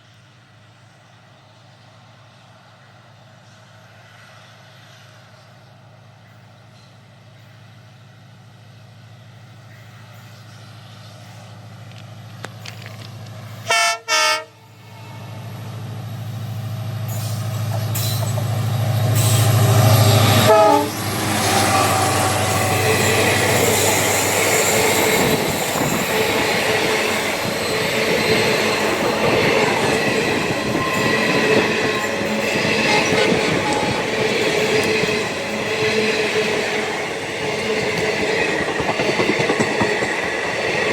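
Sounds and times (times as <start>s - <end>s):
train horn blasts: 13.6s - 15.4s, 19.2s - 26.0s, 30.5s - 36.2s
locomotive engine drone: 14.4s - 40.9s
wheels squealing: 17.1s - 40.9s
wheels clattering over rail joints: 22.3s - 40.9s.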